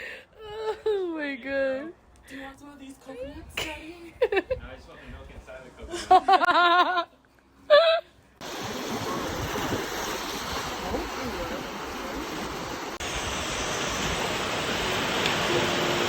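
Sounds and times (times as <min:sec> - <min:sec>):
ocean surf rushing: 0:08.4 - 0:16.0.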